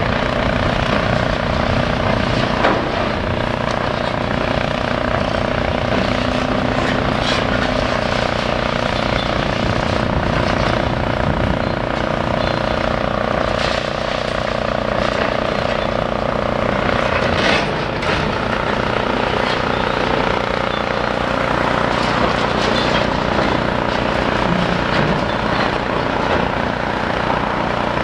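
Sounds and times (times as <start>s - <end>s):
demolition machinery engine drone: 0.0s - 28.0s.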